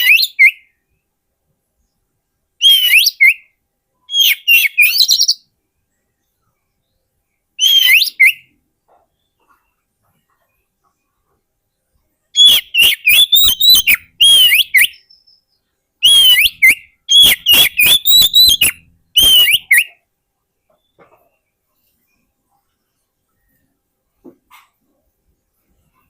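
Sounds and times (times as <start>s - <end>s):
bird whistling song: 0.0s - 0.8s, 2.6s - 5.5s, 7.6s - 8.6s, 12.4s - 20.1s.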